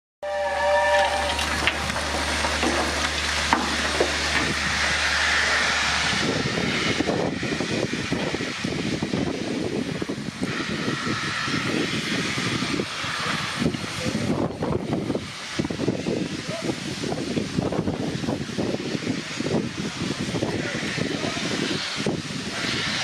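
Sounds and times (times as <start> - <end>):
chord of steady tones: 0.2 - 6.0
low hum: 0.2 - 7.4
rough rushing noise: 0.2 - 23.0
steam hissing: 0.2 - 23.0.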